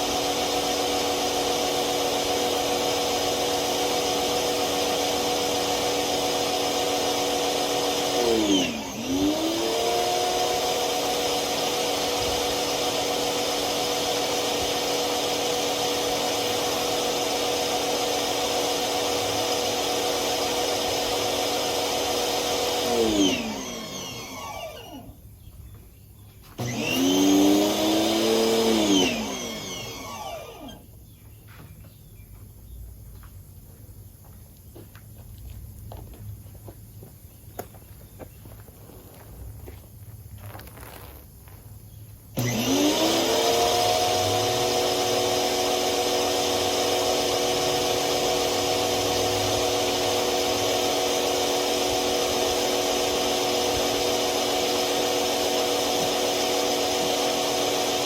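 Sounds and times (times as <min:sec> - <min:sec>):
pressure washer motor running: 0:00.0 - 0:25.2, 0:26.6 - 0:30.9, 0:42.3 - 0:58.0.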